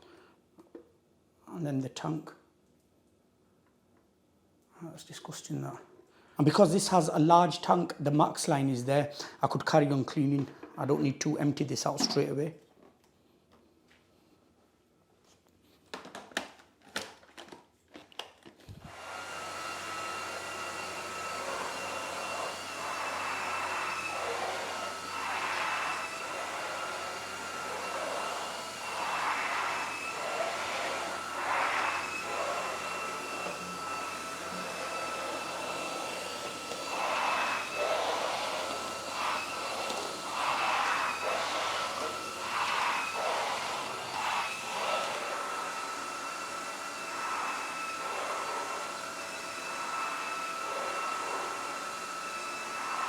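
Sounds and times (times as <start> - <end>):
floor cleaner whining: 18.8 - 53.0.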